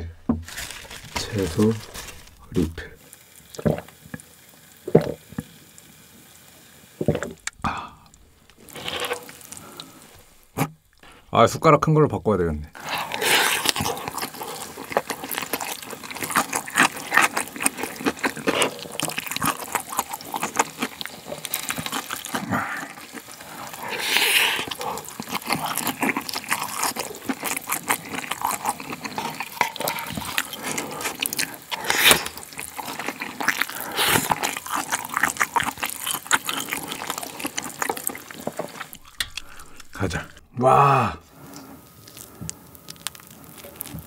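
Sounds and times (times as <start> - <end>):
wet chewing and smacking: 12.8 - 40.6, 41.3 - 44.0.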